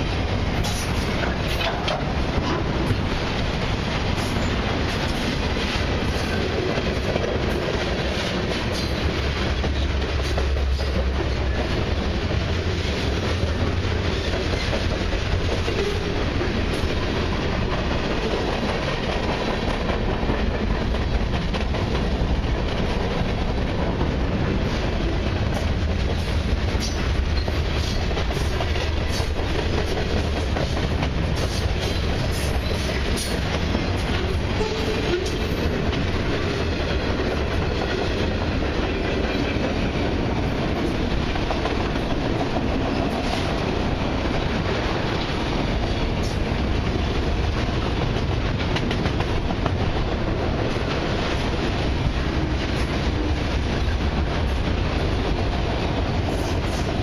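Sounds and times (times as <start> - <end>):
freight train wheels rumbling: 0.0 - 57.0
small clicks of train wheels: 0.6 - 17.0, 47.5 - 49.9.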